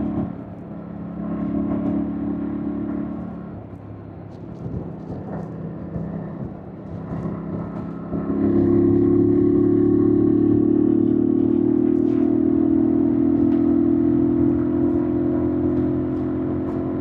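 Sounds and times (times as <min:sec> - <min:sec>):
motorcycle engine revving: 0:07.0 - 0:17.0.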